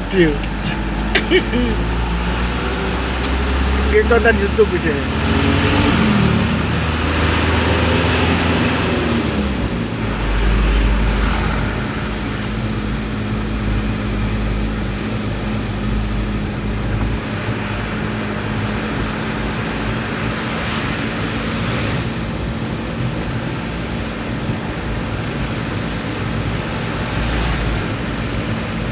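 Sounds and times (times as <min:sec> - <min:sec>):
loud rushing noise: 0:00.0 - 0:24.0
dump truck engine drone: 0:00.0 - 0:28.9.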